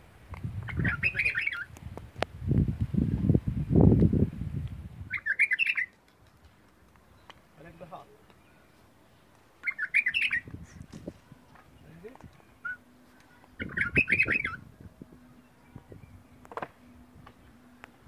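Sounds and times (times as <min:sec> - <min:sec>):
small birds chattering: 0:00.6 - 0:01.8, 0:05.1 - 0:18.0.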